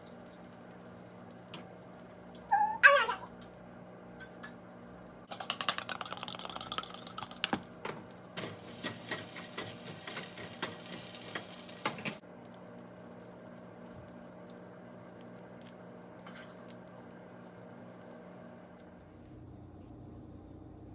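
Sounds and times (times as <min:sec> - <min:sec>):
food sizzling in a frying pan: 0:00.0 - 0:02.8, 0:08.4 - 0:12.2.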